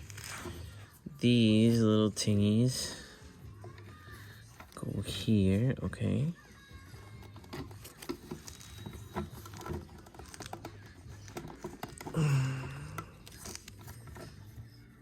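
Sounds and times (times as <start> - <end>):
plastic toy parts clicking: 7.2 - 12.2
person humming: 11.9 - 13.7.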